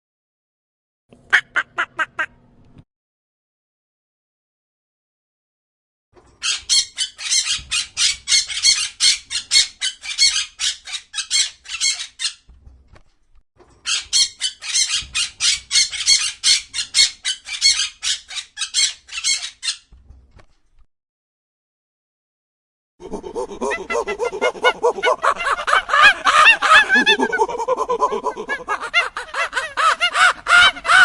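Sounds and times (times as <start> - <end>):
bird squawking: 23.6 - 27.3, 28.7 - 31.0.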